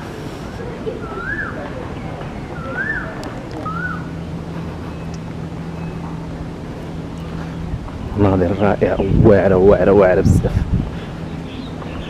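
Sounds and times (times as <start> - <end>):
low motor hum: 0.0 - 12.0
outdoor background noise: 0.0 - 12.0
bird whistling: 1.0 - 1.7, 2.5 - 4.2.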